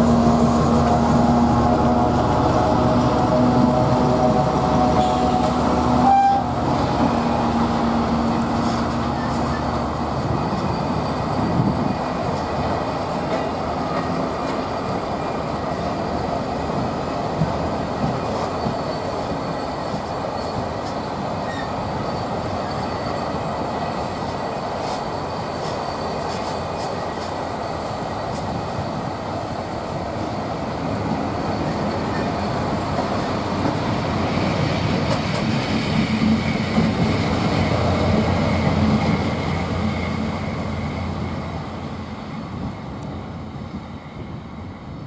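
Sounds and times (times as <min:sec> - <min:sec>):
diesel locomotive engine humming: 0:00.0 - 0:45.0
train wheels rumbling on rail: 0:00.0 - 0:45.0
short loud tone: 0:05.0 - 0:06.5.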